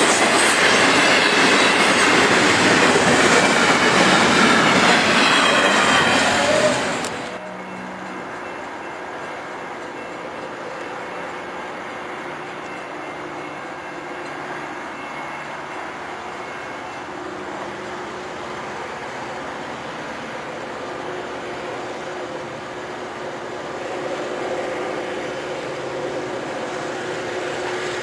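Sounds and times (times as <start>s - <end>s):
train rumbling on tracks: 0.0s - 28.0s.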